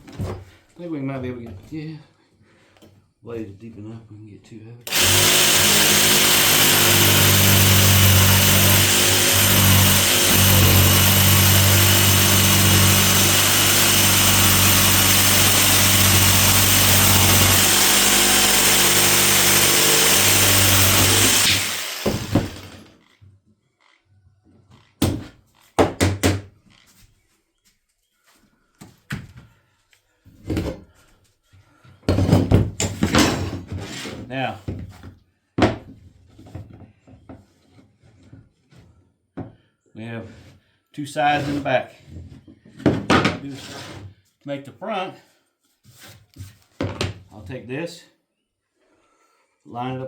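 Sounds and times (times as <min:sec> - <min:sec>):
saw winding down: 0:04.9 - 0:22.9
power saw cutting wood: 0:04.9 - 0:23.0.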